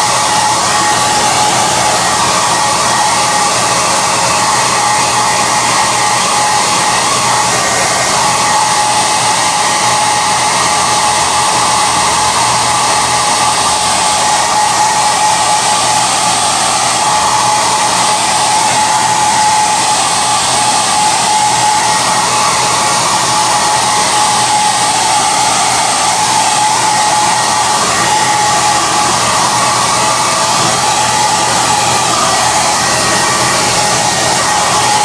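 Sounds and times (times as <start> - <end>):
hair dryer running: 0.0 - 35.0.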